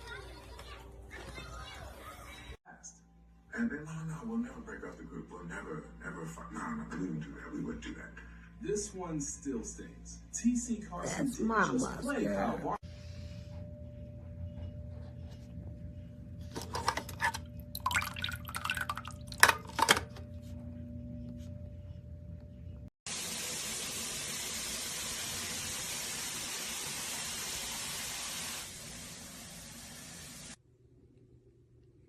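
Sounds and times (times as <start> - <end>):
low steady hum: 2.7 - 22.9
running water: 17.2 - 19.6.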